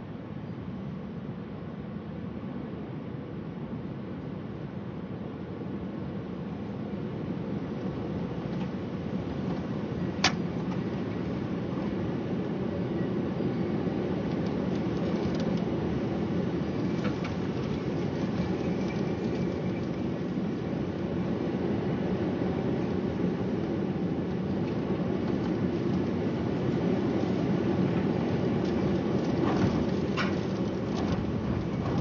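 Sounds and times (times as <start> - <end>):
thunderstorm rushing noise: 13.8 - 32.0.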